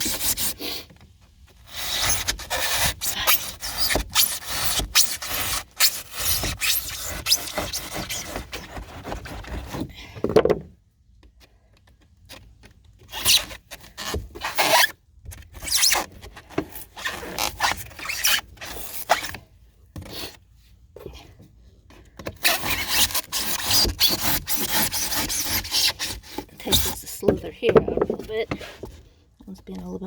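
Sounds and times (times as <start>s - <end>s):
foam scraping in boat hull: 1.6s - 9.8s, 22.4s - 28.9s.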